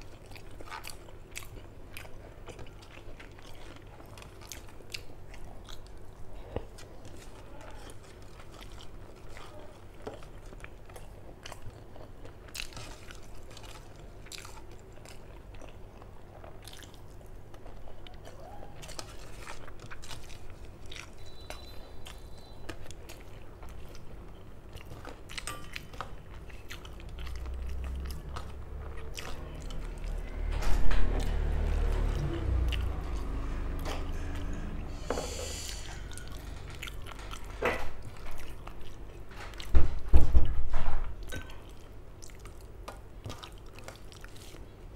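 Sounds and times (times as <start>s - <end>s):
person chewing and smacking: 0.0s - 30.5s, 31.2s - 34.6s, 35.8s - 40.1s, 41.1s - 44.9s
low rumble: 27.6s - 37.1s.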